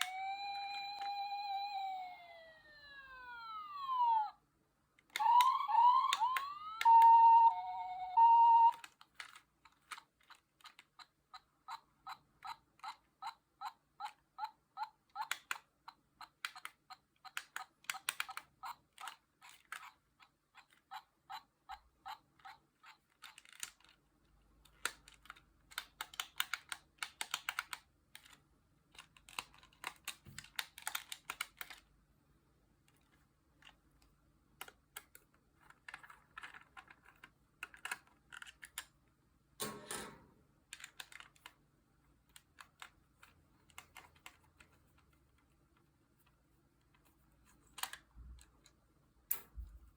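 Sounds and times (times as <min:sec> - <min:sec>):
toy electronic siren: 0:00.0 - 0:04.4, 0:05.1 - 0:08.9
evenly spaced clicks: 0:05.1 - 0:24.0, 0:24.6 - 0:31.9, 0:42.3 - 0:45.0.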